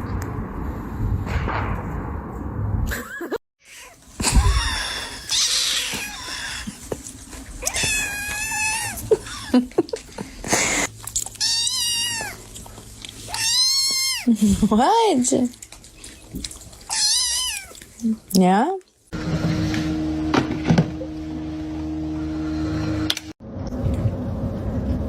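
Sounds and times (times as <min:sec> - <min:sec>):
low rumbling noise: 0:00.0 - 0:03.0, 0:21.2 - 0:25.0
cat meowing: 0:03.7 - 0:06.7, 0:07.6 - 0:09.1, 0:11.4 - 0:12.5, 0:13.3 - 0:14.3, 0:16.9 - 0:17.8.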